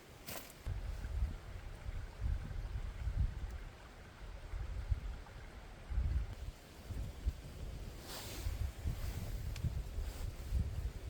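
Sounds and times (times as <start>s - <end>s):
faint outdoor hiss: 0.0s - 11.0s
wind buffeting microphone: 0.7s - 11.0s.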